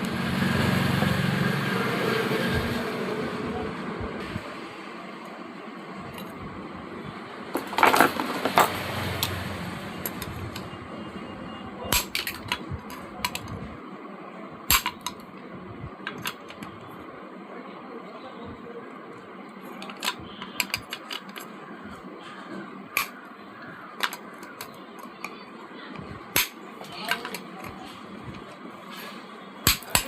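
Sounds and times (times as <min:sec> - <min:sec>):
small metal parts clinking: 0:07.6 - 0:08.8.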